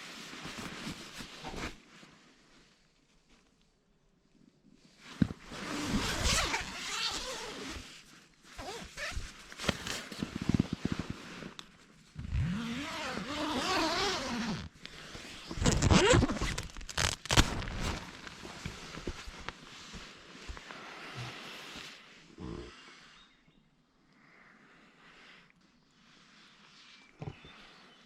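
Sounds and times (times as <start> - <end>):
zipper being pulled: 5.5 - 7.9, 8.5 - 11.6, 12.2 - 19.6.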